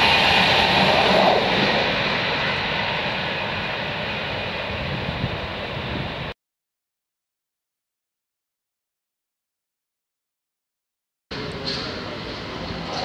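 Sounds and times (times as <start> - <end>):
electric train passing at speed: 0.0 - 6.4, 11.3 - 13.0.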